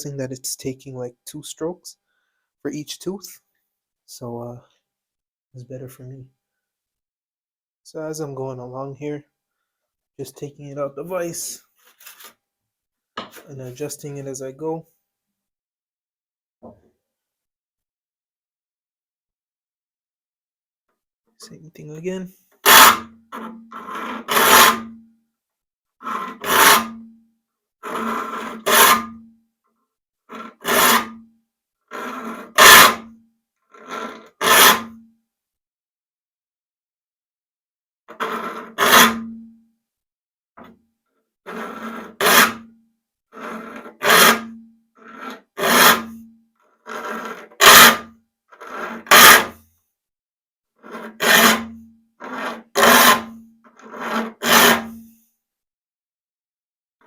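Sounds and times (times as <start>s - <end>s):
file rasping on saw teeth: 22.6s - 24.9s, 26.0s - 27.0s, 27.8s - 29.1s, 30.3s - 31.2s, 31.9s - 33.1s, 33.7s - 35.0s, 38.1s - 39.3s, 41.5s - 42.7s, 43.4s - 46.2s, 46.8s - 49.6s, 50.8s - 55.0s.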